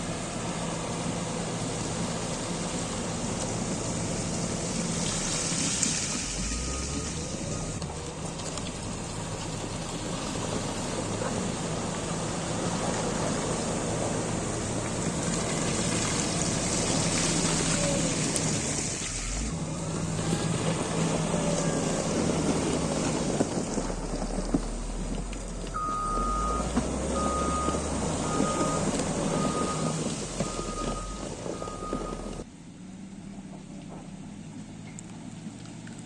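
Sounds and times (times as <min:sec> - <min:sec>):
diesel engine running: 0:00.0 - 0:36.0
back-up alarm beeping: 0:25.8 - 0:32.4.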